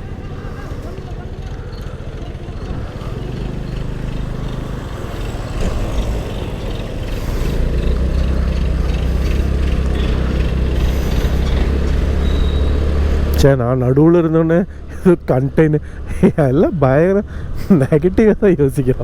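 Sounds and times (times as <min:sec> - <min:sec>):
scooter engine hum: 0:00.0 - 0:19.0
wind and road noise: 0:00.0 - 0:19.0.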